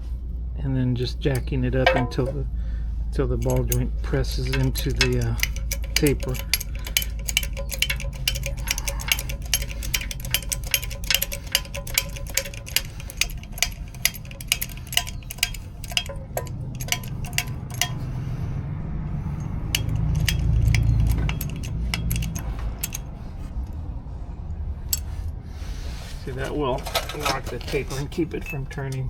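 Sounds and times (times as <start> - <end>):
hydraulic jack clicking: 1.4 - 2.4, 3.4 - 18.2, 19.4 - 23.1.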